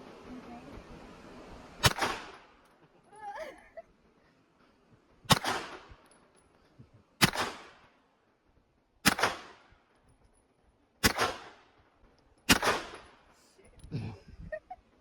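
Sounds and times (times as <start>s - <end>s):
pistol shots with echo: 1.8s - 2.5s, 5.3s - 5.9s, 7.2s - 7.8s, 9.0s - 9.7s, 11.0s - 11.6s, 12.5s - 13.2s.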